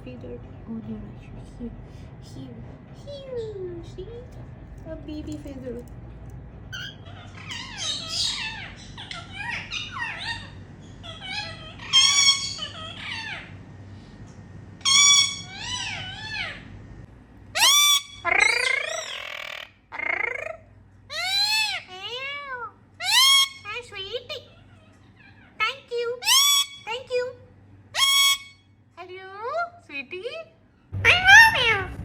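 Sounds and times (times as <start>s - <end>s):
parrot squawking calls: 6.7s - 13.6s, 14.8s - 16.7s, 17.6s - 27.0s, 27.9s - 28.7s, 30.9s - 32.0s.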